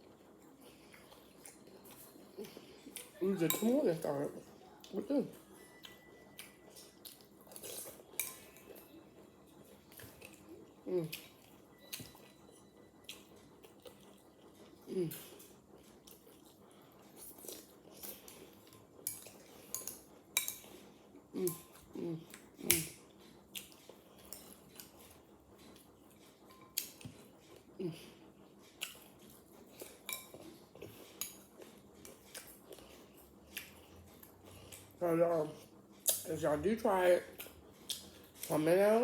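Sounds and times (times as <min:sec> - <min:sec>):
chewing: 0:00.0 - 0:38.9
metal spoon clinking on bowl: 0:03.4 - 0:03.8.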